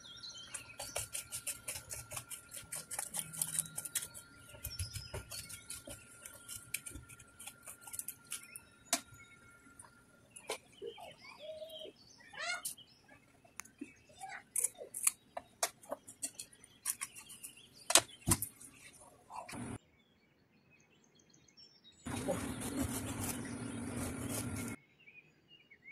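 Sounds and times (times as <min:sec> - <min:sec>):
birds chirping: 0:00.0 - 0:25.7
scraping fish on cutting board: 0:22.1 - 0:24.8.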